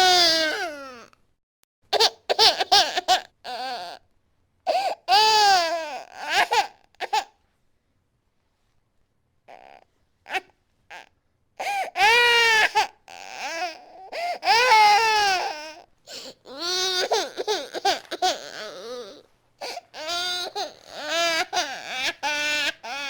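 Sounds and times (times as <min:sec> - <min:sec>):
infant crying: 0:00.0 - 0:01.1, 0:02.0 - 0:04.0, 0:04.7 - 0:07.3, 0:09.5 - 0:23.0.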